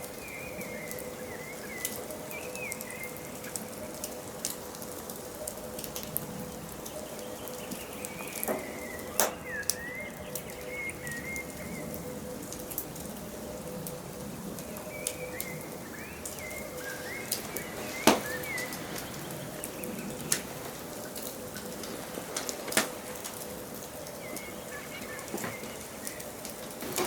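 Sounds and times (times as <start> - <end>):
small birds chirping: 0.0 - 4.2, 5.5 - 27.0
wood fire crackling and popping: 14.6 - 27.0.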